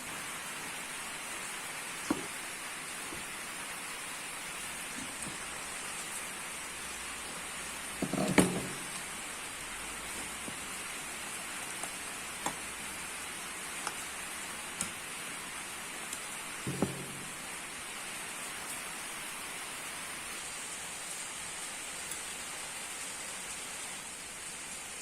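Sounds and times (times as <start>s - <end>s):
rain hissing: 0.0s - 25.0s.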